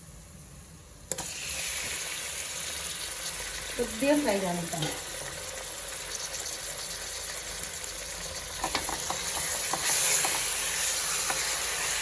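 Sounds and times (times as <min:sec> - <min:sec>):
chicken sizzling in hot oil: 0:00.0 - 0:12.0
spoon scraping a pot: 0:08.6 - 0:12.0.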